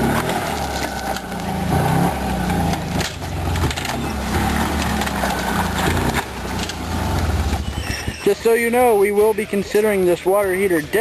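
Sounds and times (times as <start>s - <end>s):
metal tank scraping on ground: 0.0s - 8.5s
golf cart engine running: 0.0s - 11.0s.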